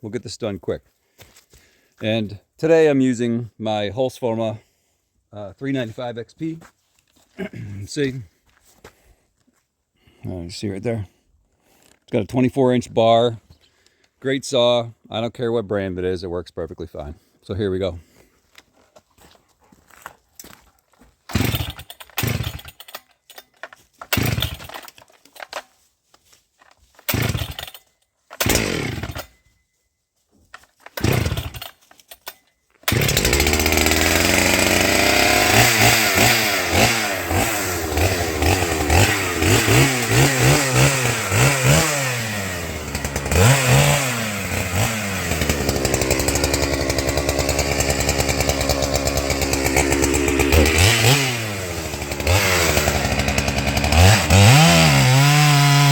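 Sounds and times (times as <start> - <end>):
chainsaw pull-starting and revving: 21.3 - 25.7, 26.9 - 29.4, 30.8 - 55.9.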